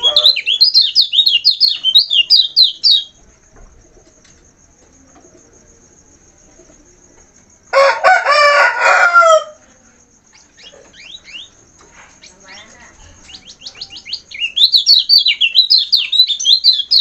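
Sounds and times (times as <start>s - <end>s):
rooster crowing: 7.7s - 9.8s.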